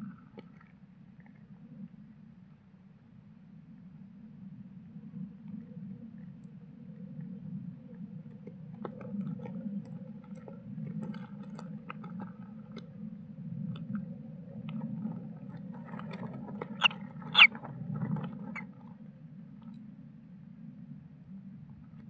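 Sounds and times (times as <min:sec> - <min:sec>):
chicks scraping and rustling: 0:16.8 - 0:17.5
high squeaks: 0:16.8 - 0:17.5.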